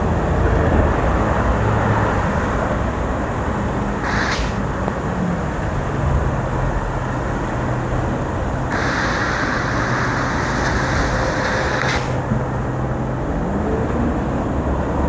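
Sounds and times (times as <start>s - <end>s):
traffic rumble: 0.0s - 15.0s
vehicle engine hum: 0.0s - 15.0s
tyres hissing on wet road: 3.6s - 5.8s, 6.5s - 12.9s.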